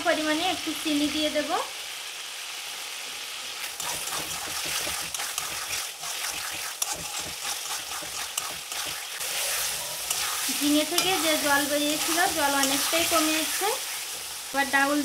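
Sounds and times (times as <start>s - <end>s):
vegetables sizzling in a pan: 0.0s - 15.0s
metal spatula scraping pan: 3.6s - 14.0s.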